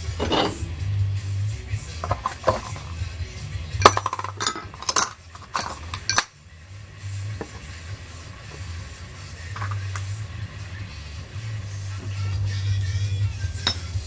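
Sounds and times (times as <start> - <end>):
metal tools clinking: 0.1 - 0.7, 2.0 - 3.0, 3.8 - 6.4, 9.6 - 10.0, 13.6 - 14.0.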